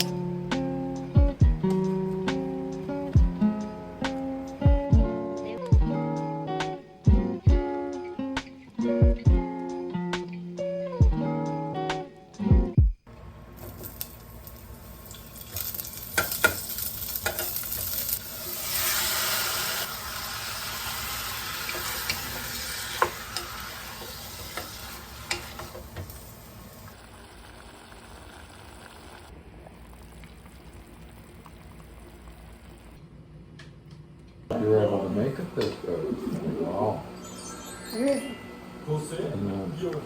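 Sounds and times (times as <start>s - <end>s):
food sizzling in a pan: 13.6s - 33.0s.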